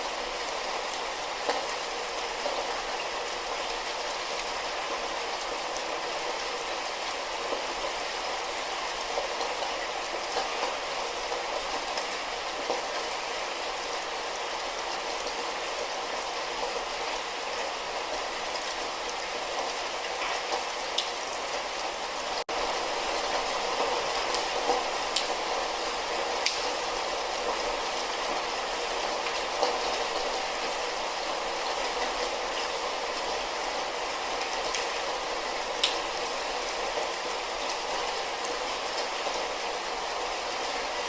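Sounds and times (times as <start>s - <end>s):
light rain hissing: 0.0s - 41.0s
raindrops ticking: 23.3s - 25.5s, 26.4s - 26.8s, 35.8s - 36.2s.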